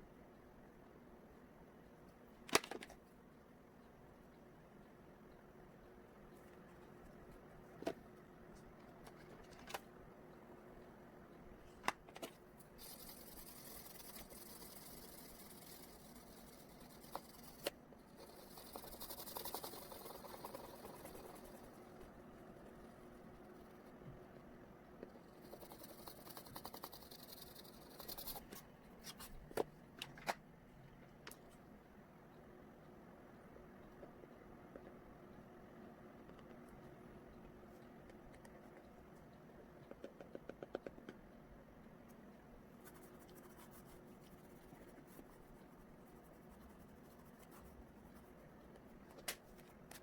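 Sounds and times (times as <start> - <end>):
pastel scratching on paper: 12.8 - 21.8, 25.1 - 28.4, 42.8 - 48.6
sharp clicks and taps: 39.7 - 41.4.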